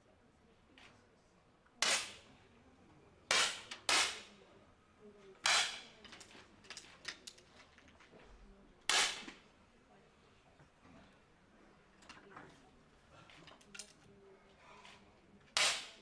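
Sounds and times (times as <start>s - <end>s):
air pistol shots: 1.8s - 2.2s, 3.3s - 4.3s, 8.9s - 9.3s, 15.6s - 16.0s.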